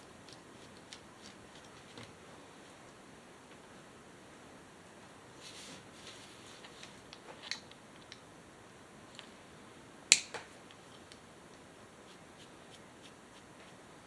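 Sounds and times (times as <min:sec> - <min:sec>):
light clicks and taps of tools: 0:06.7 - 0:08.3.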